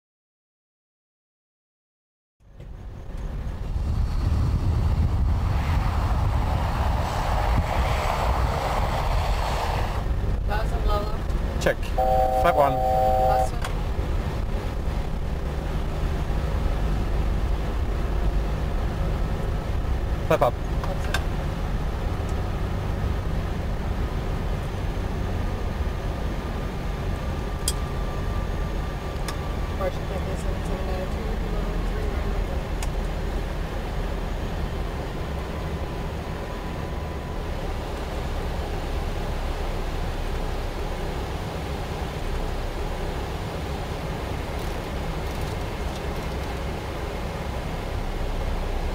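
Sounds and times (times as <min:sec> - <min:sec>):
airflow and engine noise: 0:02.4 - 0:48.9
deep rumble: 0:02.5 - 0:47.0
faint steady whine: 0:10.1 - 0:20.6, 0:25.4 - 0:48.9.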